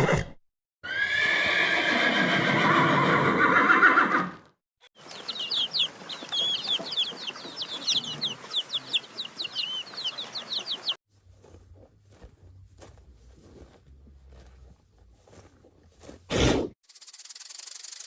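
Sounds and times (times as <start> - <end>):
birds chirping: 4.9 - 11.0
scuffing and rubbing: 11.1 - 16.4.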